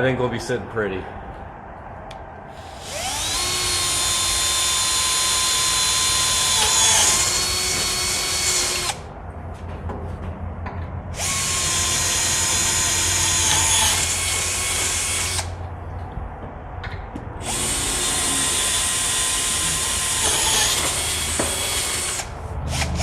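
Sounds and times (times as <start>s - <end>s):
electric drill whining: 2.6s - 9.1s, 11.2s - 15.6s, 17.4s - 23.0s.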